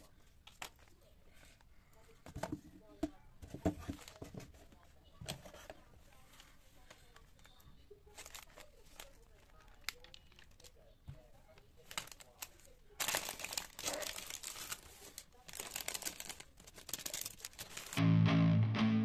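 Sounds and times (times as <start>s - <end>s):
packaging crinkling and rustling: 7.4s - 10.8s, 11.5s - 18.0s
music: 18.0s - 19.0s.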